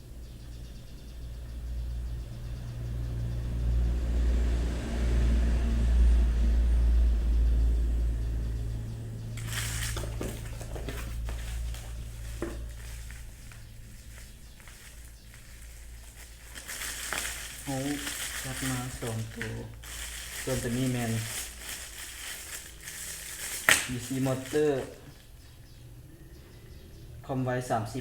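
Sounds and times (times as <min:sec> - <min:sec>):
crackling handling noises: 0:09.0 - 0:26.0.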